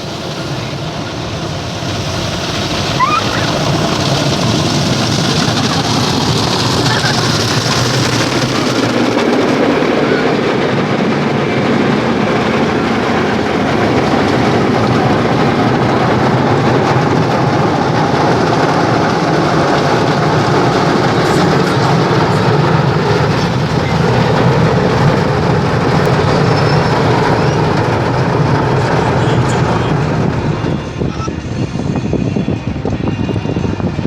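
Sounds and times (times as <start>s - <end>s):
car wash water spray: 0.0s - 10.2s
car wash equipment running: 0.0s - 34.0s.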